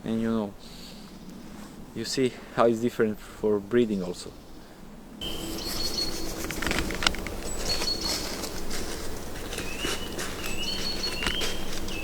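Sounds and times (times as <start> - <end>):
birds calling: 3.8 - 12.0
footsteps on forest floor: 5.2 - 12.0.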